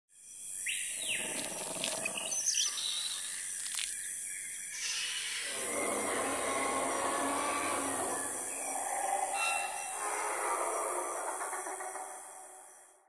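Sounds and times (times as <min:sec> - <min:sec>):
bird-like calls: 0:04.8 - 0:12.7.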